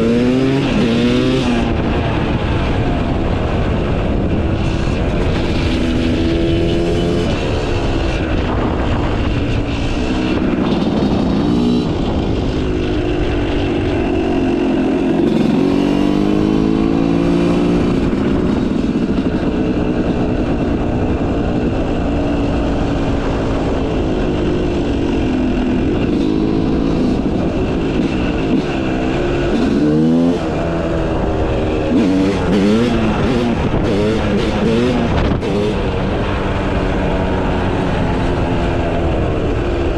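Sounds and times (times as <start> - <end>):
motocross bike engine revving: 0.0 - 1.9, 21.2 - 38.1.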